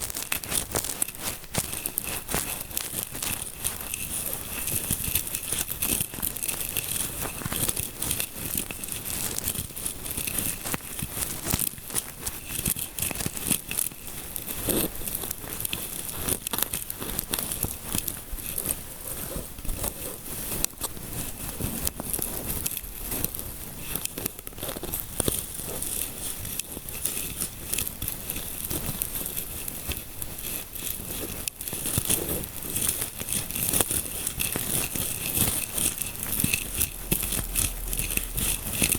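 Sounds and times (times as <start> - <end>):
fingertips scratching scalp: 0.0 - 10.5, 18.4 - 38.9.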